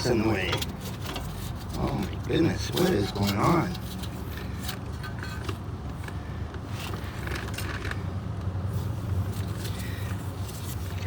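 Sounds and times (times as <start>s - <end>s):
metal tools clinking and scraping: 0.0s - 5.6s.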